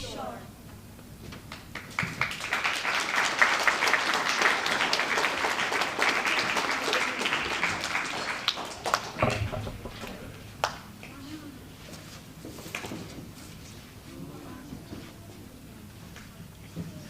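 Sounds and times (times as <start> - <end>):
audience applauding: 1.5 - 10.8.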